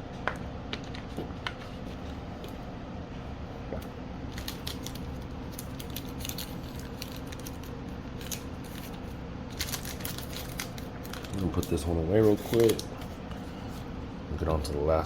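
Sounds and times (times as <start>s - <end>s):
steady low hum: 0.0s - 15.0s
trading cards clicking and scraping: 5.6s - 13.8s.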